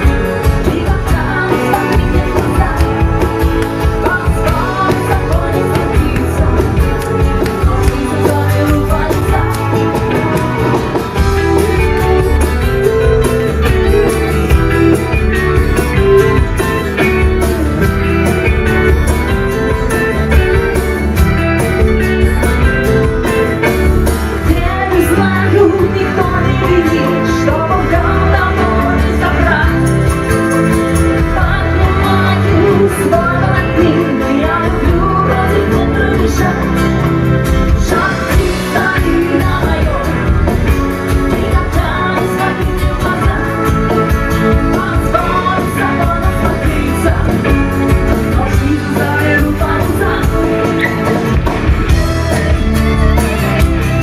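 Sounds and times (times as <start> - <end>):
live rock band playing: 0.0 - 54.0
person singing: 0.0 - 54.0.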